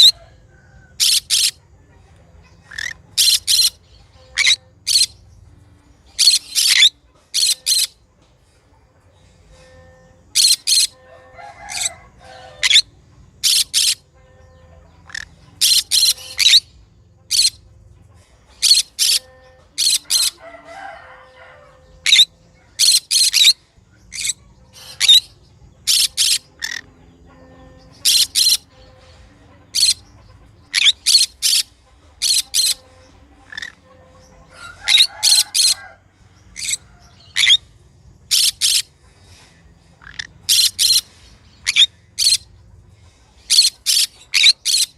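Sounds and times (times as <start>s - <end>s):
parrot chatter: 0.0s - 5.4s, 6.0s - 44.9s
parrot screeching: 2.7s - 5.1s, 10.4s - 12.8s, 19.8s - 21.4s, 28.0s - 28.7s, 34.7s - 35.8s, 36.6s - 37.6s.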